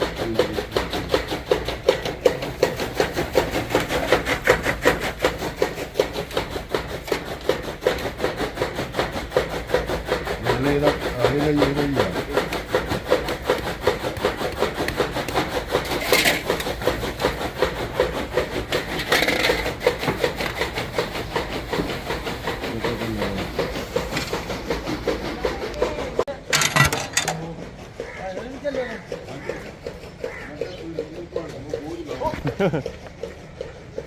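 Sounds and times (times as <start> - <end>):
rhythmic rasping: 0.0 - 34.0
loud clattering: 26.4 - 27.5.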